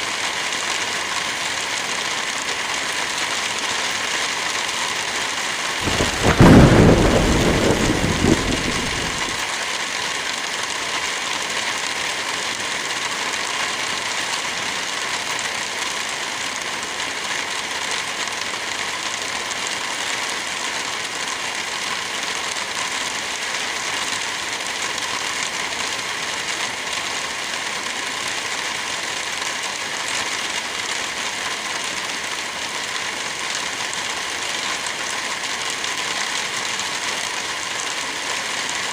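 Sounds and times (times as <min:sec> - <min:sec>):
light rain on foliage: 0:00.0 - 0:38.9
wind through trees: 0:05.8 - 0:09.5.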